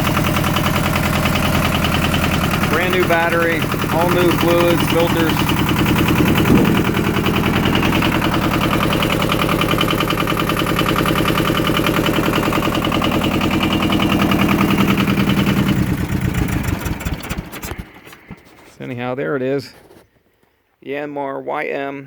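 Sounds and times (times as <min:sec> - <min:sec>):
tractor diesel engine clattering: 0:00.0 - 0:18.8.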